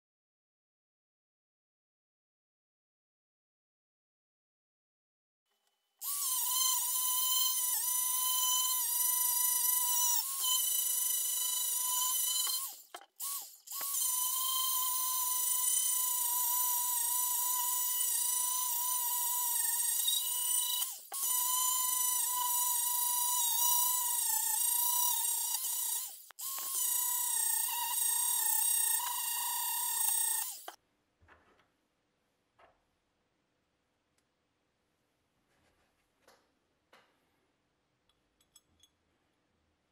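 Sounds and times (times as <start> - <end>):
electric power tool whining: 6.0 - 30.8.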